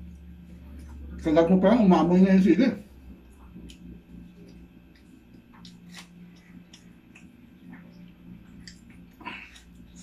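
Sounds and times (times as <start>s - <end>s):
steady low hum: 0.0s - 10.0s
man chewing: 3.0s - 10.0s.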